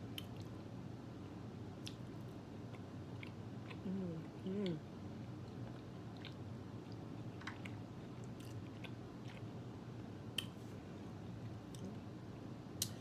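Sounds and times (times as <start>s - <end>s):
faint low hum: 0.0s - 13.0s
chewing meat: 1.8s - 9.6s.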